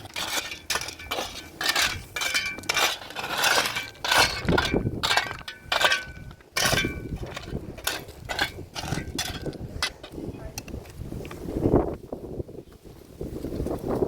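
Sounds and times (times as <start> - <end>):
dishes and pots clinking: 0.0 - 9.5.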